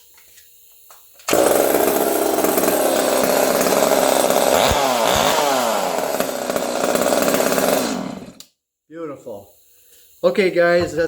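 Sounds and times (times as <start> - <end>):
chainsaw engine running: 1.3 - 8.4.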